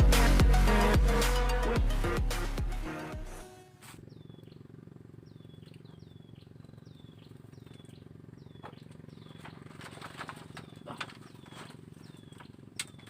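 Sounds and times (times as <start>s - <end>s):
steady low hum: 3.8s - 13.0s.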